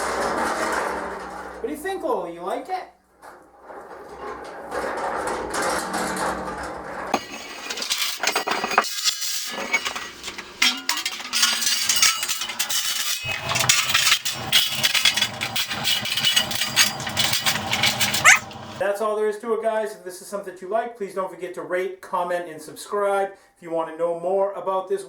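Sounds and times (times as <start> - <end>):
metal cart rolling on casters: 3.9 - 18.8
metal frame rattling and clinking: 7.2 - 18.8.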